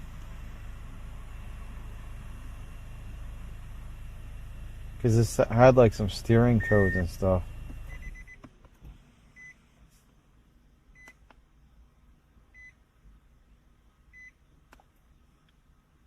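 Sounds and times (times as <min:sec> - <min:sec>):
faint electronic beep: 0:06.5 - 0:07.2.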